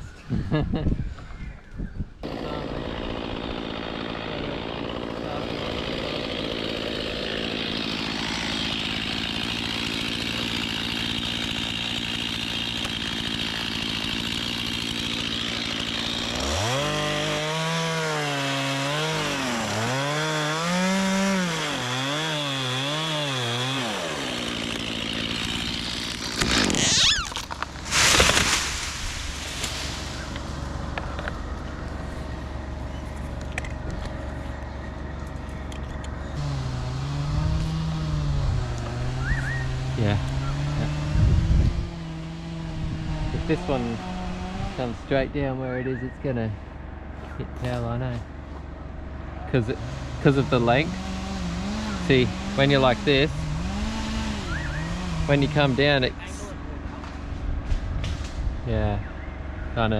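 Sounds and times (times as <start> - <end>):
chainsaw running: 2.2 - 45.6, 46.3 - 57.4
loud sudden noises: 26.4 - 30.5.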